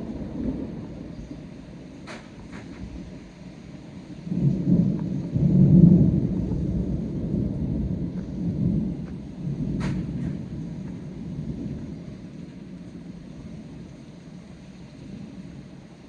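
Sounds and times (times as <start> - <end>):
rolling thunder: 0.0 - 16.0.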